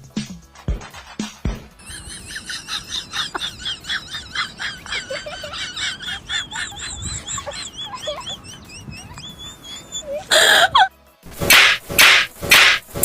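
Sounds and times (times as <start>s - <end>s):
birds chirping: 1.8s - 10.8s
wavering whistled bird call: 6.3s - 10.8s.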